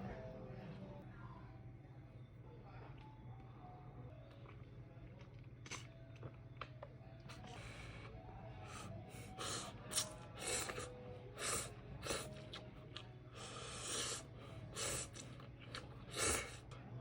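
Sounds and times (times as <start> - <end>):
person slurping noodles: 8.7 - 12.6, 13.4 - 16.7.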